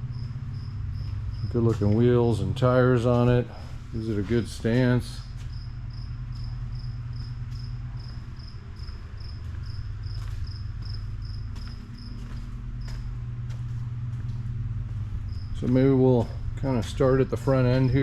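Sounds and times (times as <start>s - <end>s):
cricket chirping: 0.0s - 2.3s, 5.2s - 13.1s, 15.2s - 16.6s
steady low hum: 0.0s - 18.0s.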